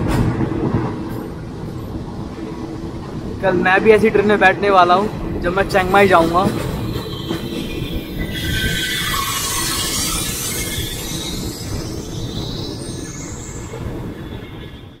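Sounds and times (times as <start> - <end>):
train wheels rumbling on rails: 0.0 - 15.0
train hissing: 6.6 - 15.0
wheel squeal: 6.7 - 15.0.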